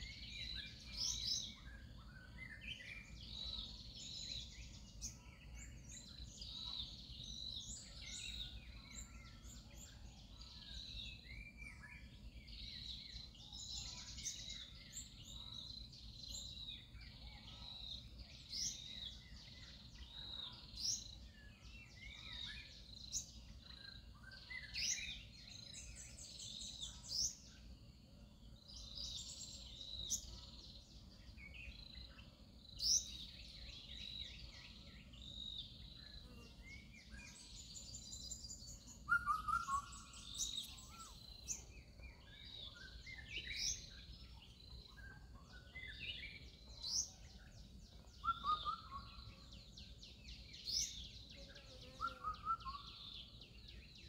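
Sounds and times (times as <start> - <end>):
birds chirping and whistling: 21.9 - 27.6, 36.7 - 51.2, 52.0 - 54.0.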